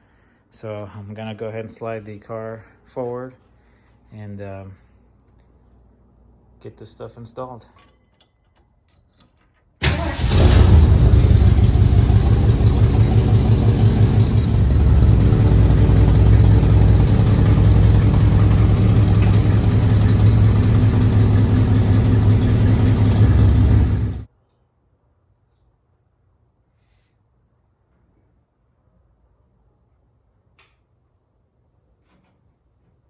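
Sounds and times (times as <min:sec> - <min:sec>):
car engine idling: 0:09.8 - 0:24.3.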